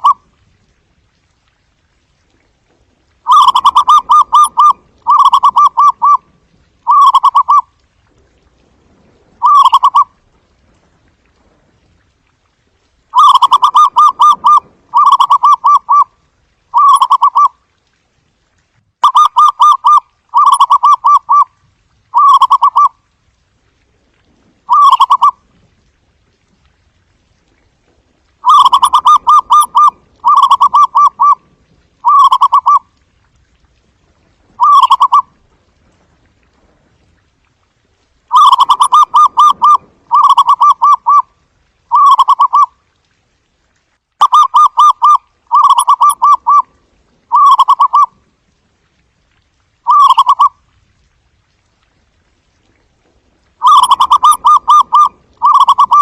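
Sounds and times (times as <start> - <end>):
dove cooing: 3.3 - 6.2, 6.9 - 7.6, 9.4 - 10.1, 13.2 - 16.1, 24.7 - 25.3, 28.4 - 31.4, 32.0 - 32.8, 34.6 - 35.2, 38.3 - 41.2, 41.9 - 42.7, 44.2 - 46.7, 47.3 - 48.1, 49.9 - 50.5, 53.6 - 56.0.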